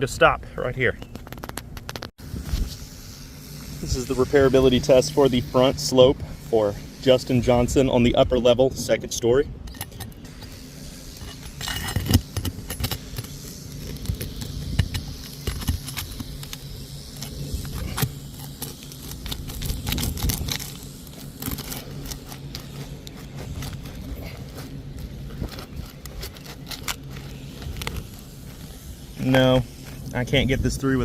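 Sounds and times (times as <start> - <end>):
tool scraping under roof shingles: 9.9 - 30.2
shingle ripping: 11.1 - 24.4, 25.0 - 28.2.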